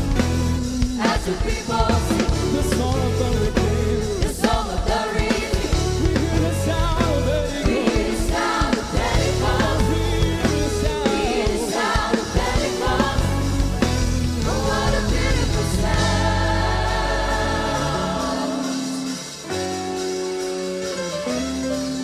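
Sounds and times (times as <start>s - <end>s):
band accompaniment: 0.0s - 22.0s
choir singing gospel: 0.1s - 20.4s
low bass line: 1.9s - 4.2s, 5.7s - 7.5s, 9.2s - 11.1s, 12.6s - 18.2s.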